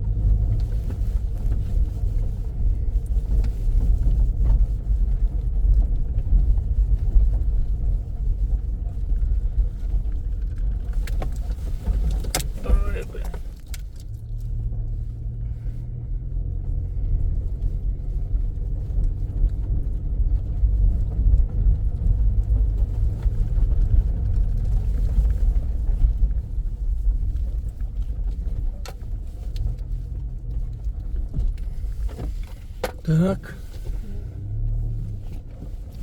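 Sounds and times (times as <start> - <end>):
car engine and road rumble: 0.0 - 36.0.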